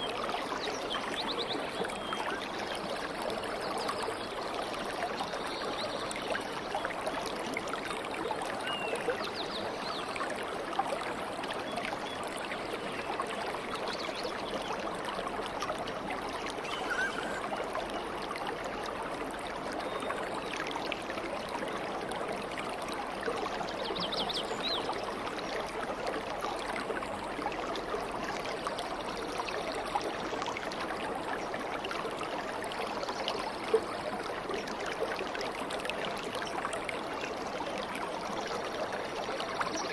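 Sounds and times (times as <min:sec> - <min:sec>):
stream babbling and trickling: 0:00.0 - 0:39.9
faint bird chirps: 0:16.6 - 0:17.7.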